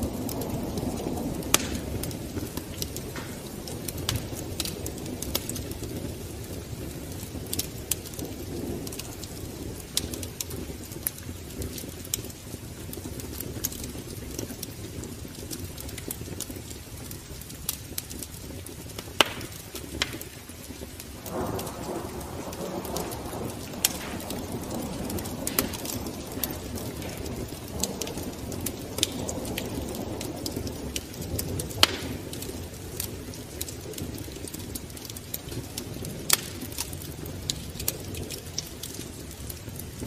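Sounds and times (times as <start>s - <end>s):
fire rushing hiss: 0.0s - 31.1s
fire crackles and pops: 0.0s - 40.0s.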